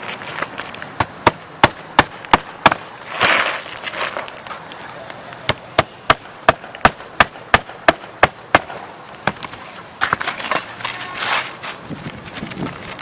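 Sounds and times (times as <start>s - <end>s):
scraping and rustling: 0.0s - 1.0s, 2.8s - 4.9s, 9.4s - 13.0s
hammer striking roofing nail: 1.0s - 2.8s, 5.5s - 9.5s.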